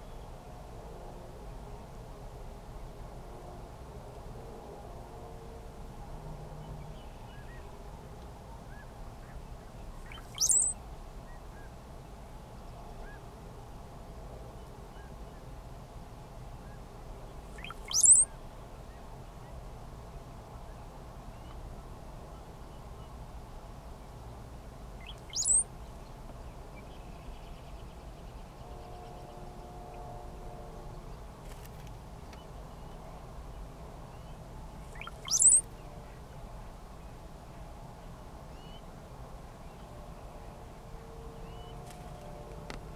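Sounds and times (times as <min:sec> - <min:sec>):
cowbirds singing high whistles: 0:10.0 - 0:10.8, 0:17.5 - 0:18.3, 0:25.0 - 0:25.7, 0:34.9 - 0:35.6.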